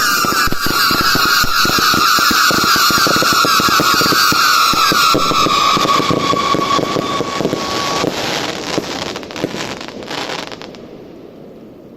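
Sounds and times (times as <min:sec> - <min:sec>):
firework high whistle: 0:00.0 - 0:10.9
firework dense crackling: 0:00.0 - 0:11.9.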